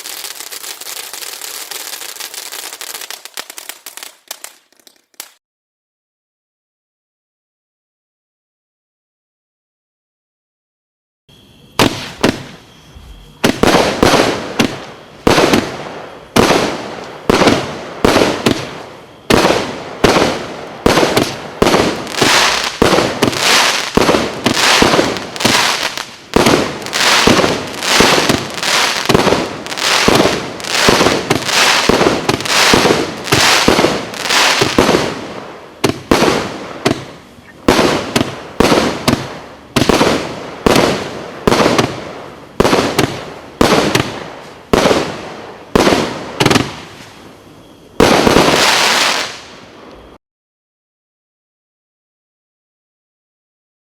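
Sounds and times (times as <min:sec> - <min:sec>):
firework firing loud shots: 0:11.8 - 0:12.6, 0:13.4 - 0:47.0, 0:48.0 - 0:49.5.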